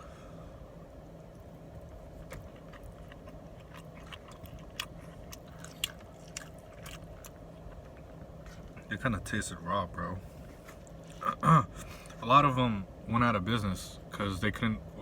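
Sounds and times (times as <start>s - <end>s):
low background hum: 0.0s - 15.0s
person chewing: 1.2s - 8.9s, 10.4s - 12.2s.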